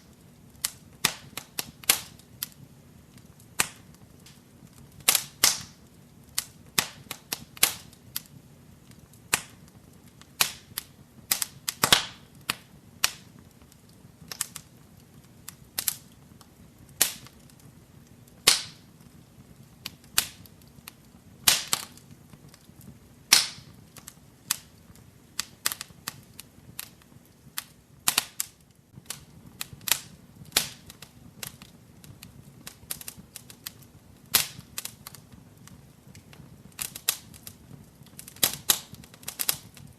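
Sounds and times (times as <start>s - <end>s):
faint low hiss: 0.0s - 39.9s
wood fire crackling and popping: 0.0s - 39.9s.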